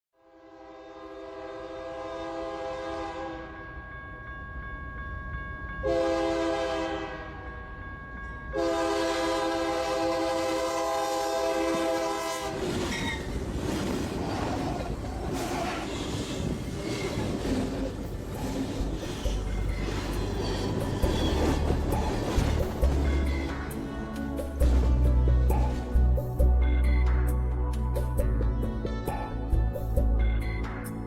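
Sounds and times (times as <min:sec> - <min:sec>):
locomotive air horn blasts: 0:00.2 - 0:03.6, 0:05.8 - 0:07.6, 0:08.5 - 0:13.1
train rumbling on track: 0:01.4 - 0:30.8.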